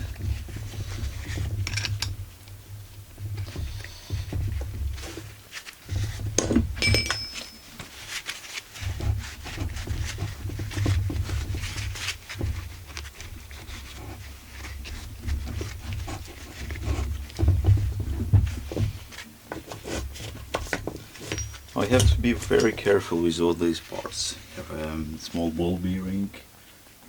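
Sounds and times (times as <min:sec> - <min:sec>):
metal parts clinking and rattling: 0:01.6 - 0:02.1, 0:06.4 - 0:07.8, 0:21.2 - 0:22.8
metallic ring: 0:06.8 - 0:08.0.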